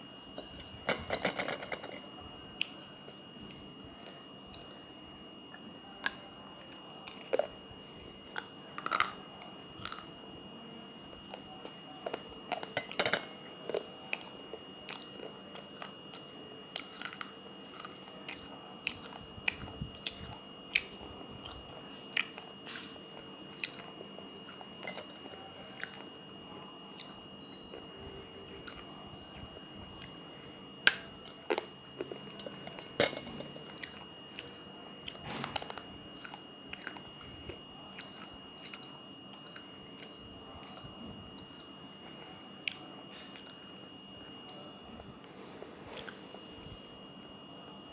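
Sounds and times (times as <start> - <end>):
clay cup crunching when bitten: 8.2 - 10.1, 14.9 - 26.1, 30.9 - 40.8.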